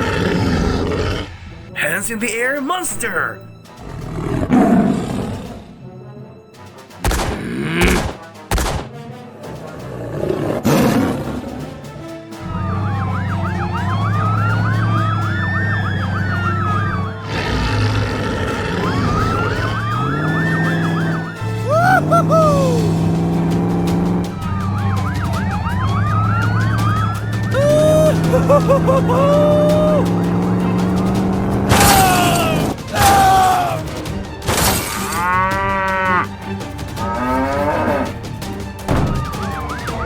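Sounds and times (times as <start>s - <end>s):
wailing siren: 12.4s - 31.1s, 39.0s - 40.0s
engine hum: 12.4s - 32.8s.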